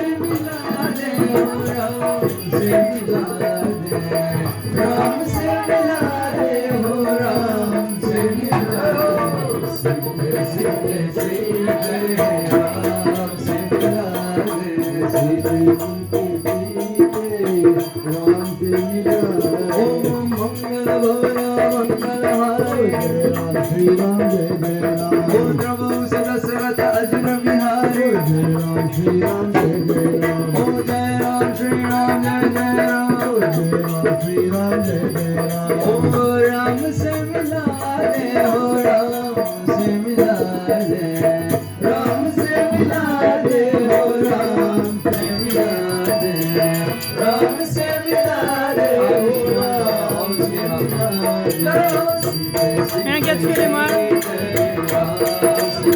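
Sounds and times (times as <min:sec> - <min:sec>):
devotional song singing: 0:00.0 - 0:55.9
hand percussion: 0:00.0 - 0:55.9.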